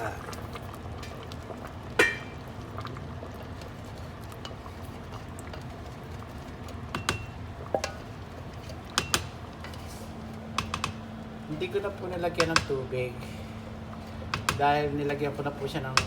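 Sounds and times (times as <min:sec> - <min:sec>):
steady low hum: 0:00.0 - 0:16.0
cookware and utensils clinking: 0:02.0 - 0:02.4, 0:07.0 - 0:08.0.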